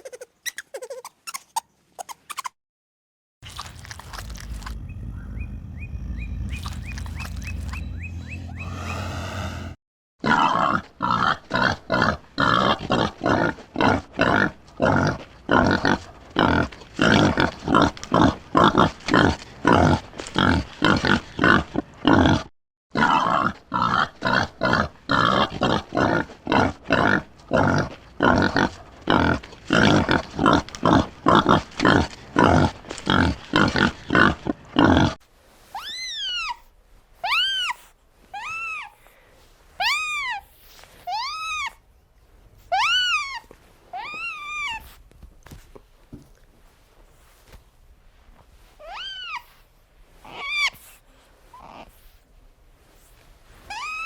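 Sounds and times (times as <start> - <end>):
pig grunting: 3.4 - 35.2.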